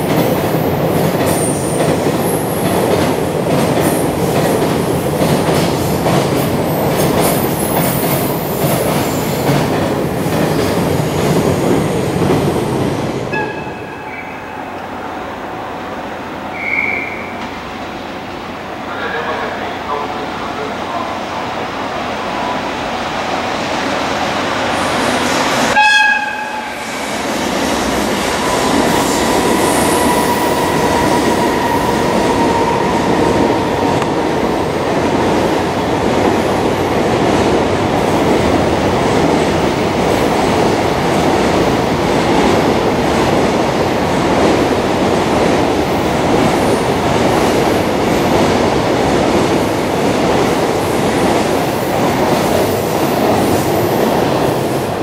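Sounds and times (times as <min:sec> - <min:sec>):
train rumbling past: 0:00.0 - 0:55.0
train horn blast: 0:13.3 - 0:14.6, 0:25.8 - 0:26.9.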